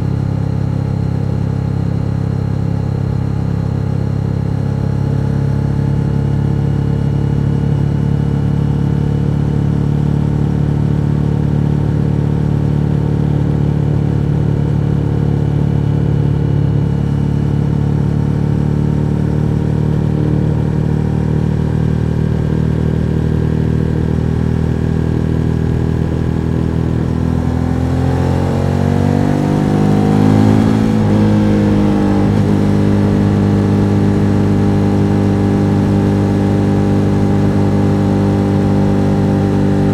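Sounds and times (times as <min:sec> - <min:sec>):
motorcycle engine revving: 0:16.0 - 0:39.9.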